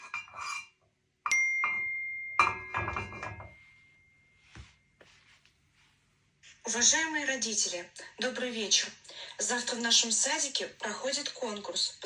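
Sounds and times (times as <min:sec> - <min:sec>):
bright chime ringing: 0:01.3 - 0:04.6.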